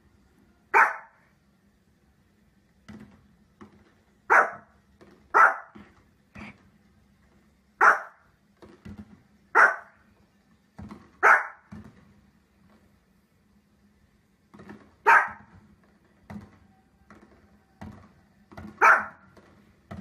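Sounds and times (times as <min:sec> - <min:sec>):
small dog barking: 0:00.7 - 0:01.2, 0:04.3 - 0:04.7, 0:05.3 - 0:05.8, 0:07.8 - 0:08.2, 0:09.5 - 0:10.0, 0:11.2 - 0:11.7, 0:15.0 - 0:15.5, 0:18.7 - 0:19.3.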